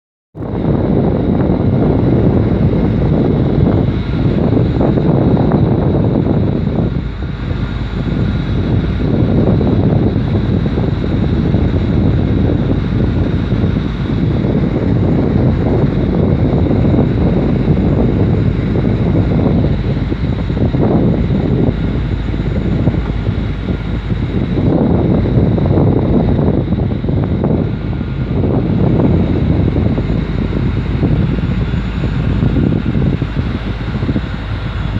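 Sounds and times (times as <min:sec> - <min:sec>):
boat rushing through sea: 0:00.4 - 0:34.9
faint high whine: 0:00.4 - 0:34.9
wind buffeting microphone: 0:00.4 - 0:34.9.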